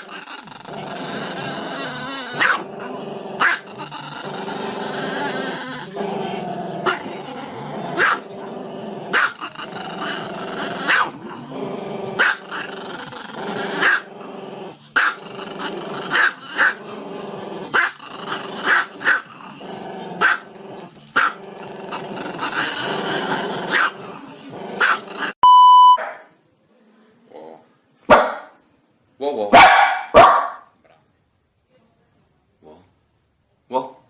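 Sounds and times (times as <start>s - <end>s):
dog growling: 0.0s - 25.4s
dog barking: 2.4s - 2.6s, 8.0s - 8.3s, 10.9s - 11.2s, 23.7s - 23.9s, 24.8s - 25.0s, 26.0s - 26.3s, 28.1s - 28.6s, 29.5s - 30.7s.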